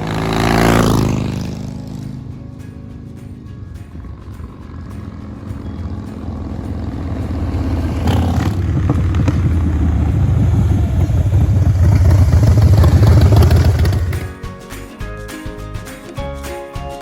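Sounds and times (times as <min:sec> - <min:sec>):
motorcycle exhaust rumble: 0:00.0 - 0:14.4.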